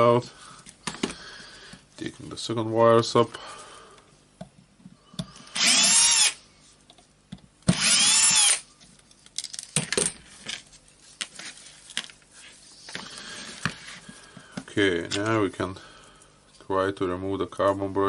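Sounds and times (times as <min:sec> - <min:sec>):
electric screwdriver whining: 0:05.5 - 0:06.4, 0:07.7 - 0:08.7.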